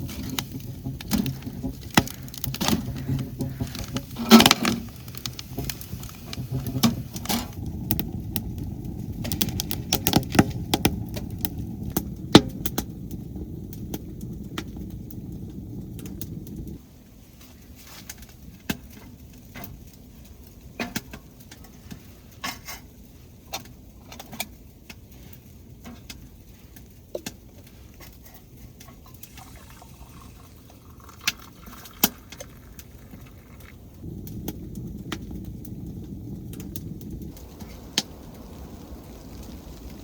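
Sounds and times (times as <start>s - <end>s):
low rumble: 0.0s - 16.8s, 32.4s - 40.0s.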